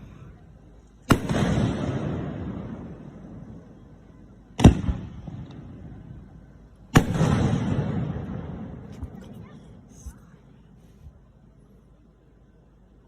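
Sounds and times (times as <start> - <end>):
rolling rumble of fireworks: 0.0 - 13.0
firework shells booming: 1.0 - 3.7, 4.6 - 6.1, 6.9 - 9.1.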